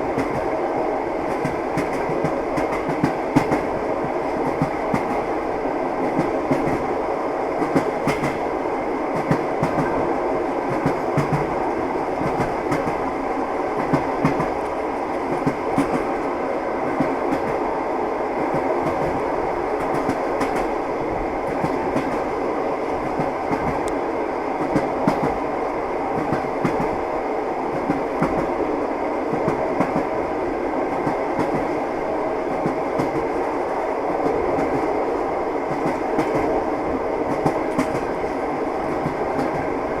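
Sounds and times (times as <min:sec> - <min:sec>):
railway carriage rumble: 0:00.0 - 0:40.0
train wheels clacking over joints: 0:07.6 - 0:08.4, 0:37.3 - 0:39.7.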